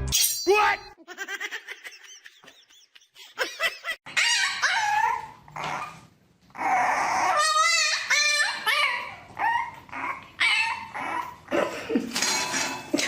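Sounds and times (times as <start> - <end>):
dog barking and whining: 4.1 - 11.5
dog warbling cry: 4.1 - 11.6.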